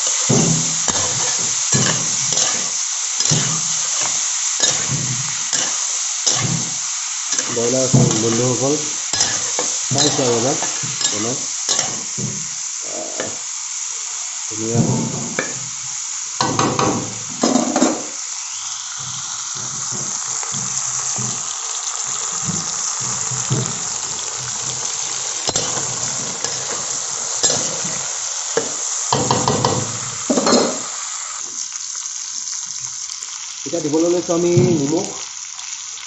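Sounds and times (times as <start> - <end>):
metal spatula scraping wok: 0.0 - 13.4, 19.0 - 29.7
food sizzling in oil: 0.0 - 36.0.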